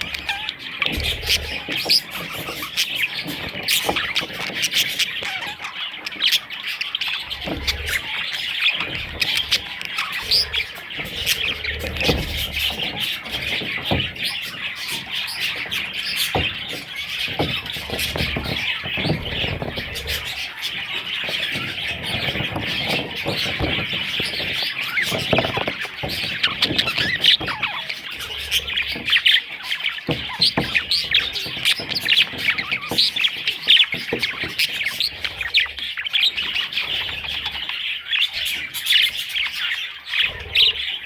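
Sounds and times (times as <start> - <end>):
budgerigars chattering and chirping: 0.0 - 41.0.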